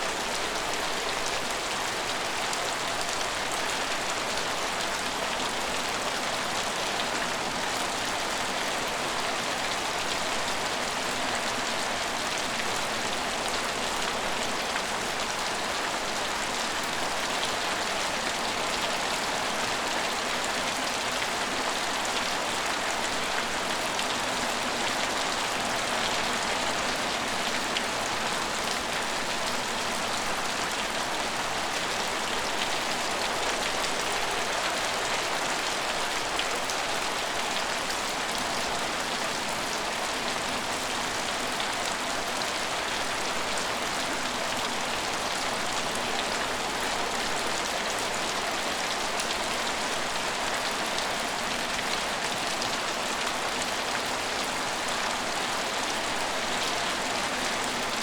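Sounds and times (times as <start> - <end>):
rain falling on roofs: 0.0 - 58.0.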